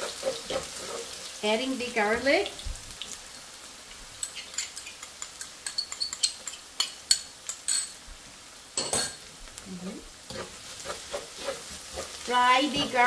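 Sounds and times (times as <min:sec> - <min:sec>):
wooden spatula scraping a wok: 0:00.0 - 0:01.4, 0:09.8 - 0:13.0
garlic and shallots frying in oil: 0:00.0 - 0:13.0.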